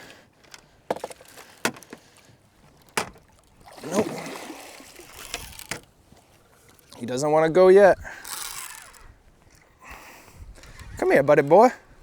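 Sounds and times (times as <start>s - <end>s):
fish thrashing in water: 3.2s - 5.9s.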